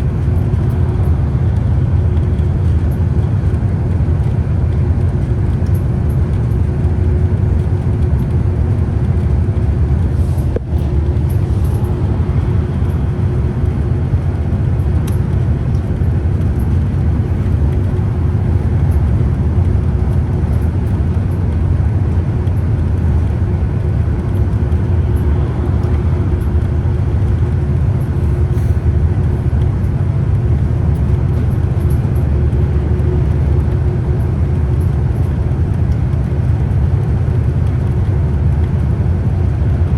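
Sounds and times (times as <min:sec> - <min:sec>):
steady whine: 0:00.0 - 0:37.8
bus engine and road rumble: 0:00.0 - 0:39.9.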